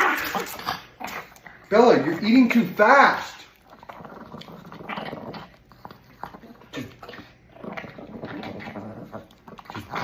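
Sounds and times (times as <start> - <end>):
dog chewing and smacking: 0.0 - 10.0.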